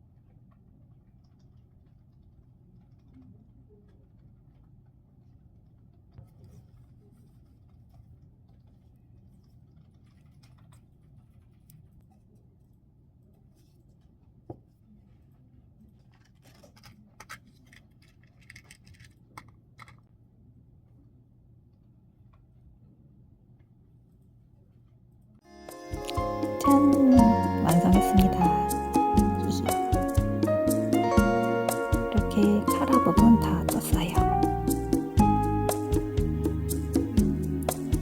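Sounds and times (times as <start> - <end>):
low room hum: 0.0 - 25.4.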